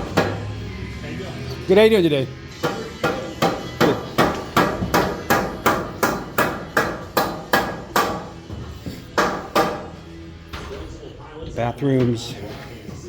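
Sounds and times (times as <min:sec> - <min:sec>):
hammer blows ringing: 0:02.6 - 0:08.4, 0:09.2 - 0:10.0.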